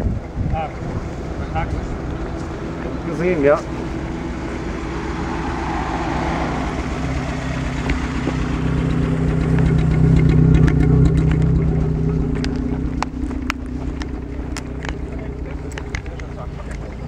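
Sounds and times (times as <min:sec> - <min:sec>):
car driving past: 0:00.2 - 0:09.8.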